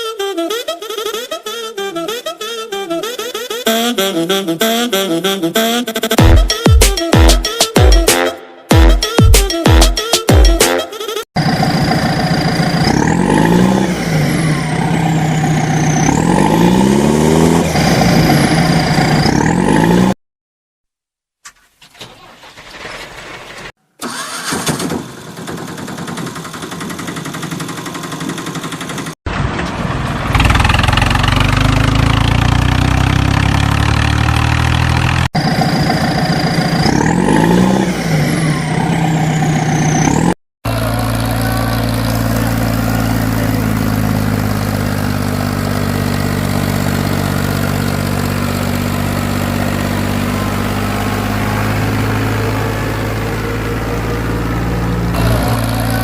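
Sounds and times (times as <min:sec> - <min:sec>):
tractor engine starting and revving: 0:11.4 - 0:20.2, 0:21.6 - 0:56.0
tractor engine idling: 0:22.0 - 0:33.0, 0:40.7 - 0:56.0.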